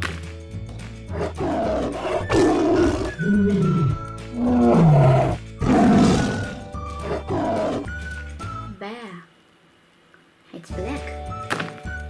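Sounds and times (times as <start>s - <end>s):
background music: 0.0s - 8.9s, 10.7s - 12.0s
tiger roaring: 1.1s - 8.0s.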